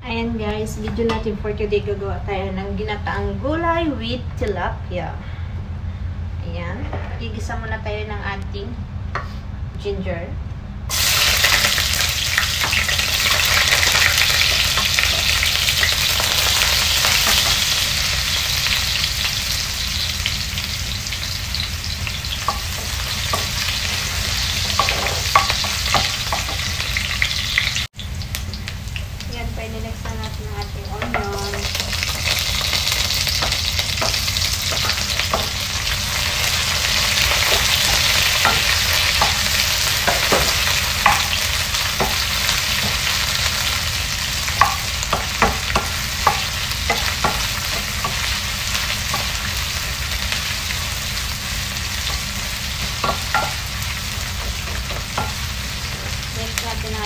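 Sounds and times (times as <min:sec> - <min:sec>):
onions sizzling in hot oil: 0:10.9 - 0:57.0
wooden spoon knocking a pan: 0:30.9 - 0:31.8, 0:32.7 - 0:35.6, 0:37.5 - 0:41.4, 0:44.6 - 0:48.3, 0:52.8 - 0:53.7, 0:54.4 - 0:55.5.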